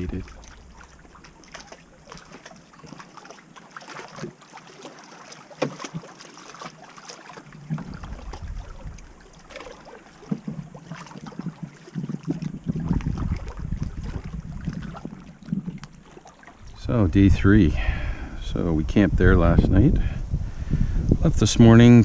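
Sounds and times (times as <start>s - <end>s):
wind buffeting microphone: 0.0s - 1.5s, 7.6s - 16.0s, 16.6s - 22.0s
water lapping and splashing: 0.0s - 18.2s
light knocks on canoe: 5.6s - 6.1s, 9.5s - 11.6s.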